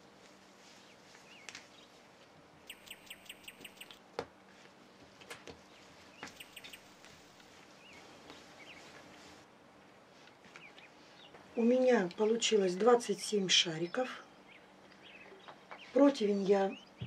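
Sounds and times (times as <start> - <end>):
faint steady hum: 0.0 - 17.0
faint bird chirping: 2.6 - 4.0, 5.6 - 7.0, 7.7 - 9.4, 10.6 - 17.0.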